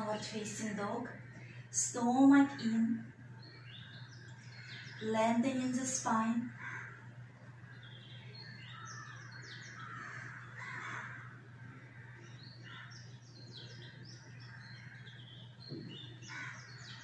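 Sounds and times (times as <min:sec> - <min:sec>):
steady low hum: 0:00.0 - 0:17.0
high falling bird chirps: 0:06.8 - 0:17.0.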